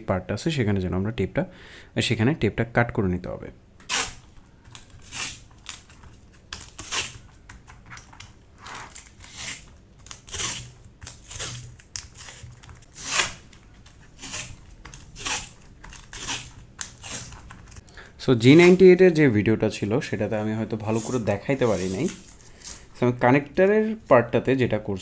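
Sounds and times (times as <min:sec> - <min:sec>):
tape tearing off roll: 0:03.8 - 0:07.3, 0:08.6 - 0:17.8.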